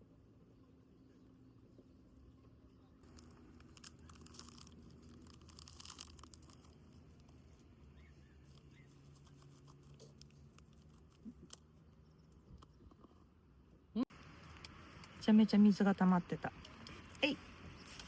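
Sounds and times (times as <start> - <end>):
plastic wrapper crinkling: 3.0 - 7.7.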